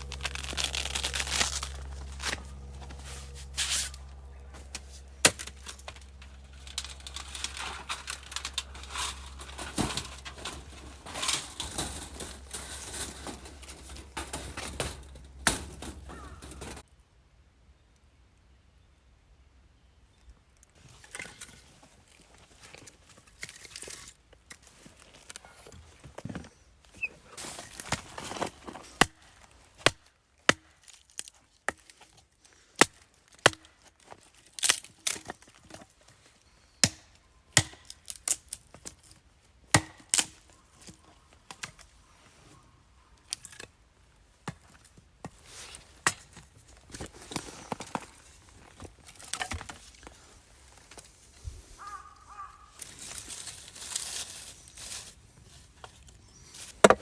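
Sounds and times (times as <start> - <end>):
rustling: 0.0 - 16.8, 44.7 - 57.0
firewood being chopped: 29.0 - 31.0, 32.8 - 33.7, 36.8 - 38.4, 39.7 - 40.4, 56.7 - 57.0.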